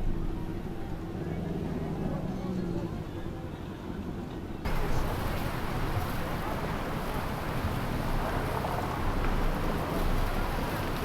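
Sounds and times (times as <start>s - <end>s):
motorboat engine running: 4.7s - 11.0s.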